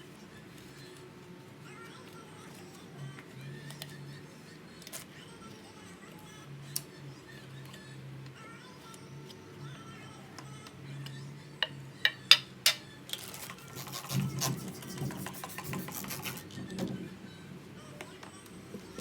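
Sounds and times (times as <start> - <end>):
soft background music: 0.0 - 19.0
rasping rubbing noise: 13.3 - 16.5.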